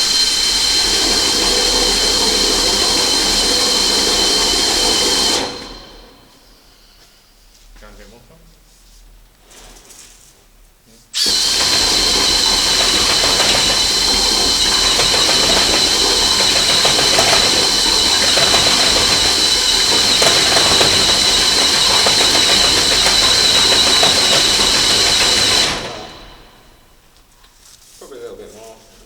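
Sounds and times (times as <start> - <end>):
drain machine whining and grinding: 0.0 - 6.7, 11.2 - 27.3.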